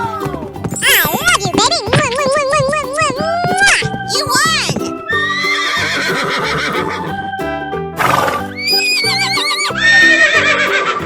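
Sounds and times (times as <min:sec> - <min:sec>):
cheerful background music: 0:00.0 - 0:11.0
cartoon horse whinnying: 0:00.8 - 0:01.4, 0:03.6 - 0:07.0, 0:08.0 - 0:11.0.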